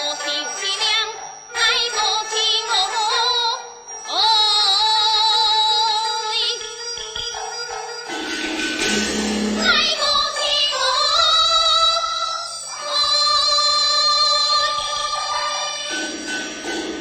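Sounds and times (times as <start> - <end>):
instrumental accompaniment: 0.0 - 11.2, 14.0 - 17.0
opera singing: 9.6 - 16.2.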